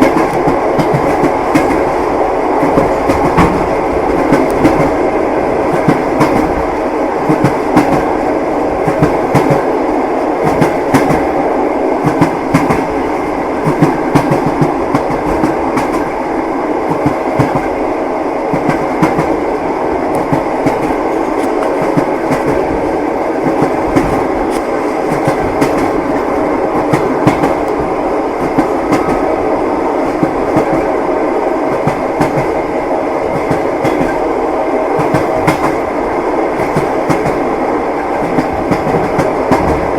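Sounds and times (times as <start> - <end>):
train wheels clacking over rail joints: 0.0 - 2.0, 2.6 - 5.0, 13.6 - 16.1, 23.4 - 26.2, 26.8 - 29.2, 33.3 - 34.2, 35.0 - 35.8, 36.5 - 37.4, 38.0 - 39.9
railway carriage rumble: 0.0 - 39.9.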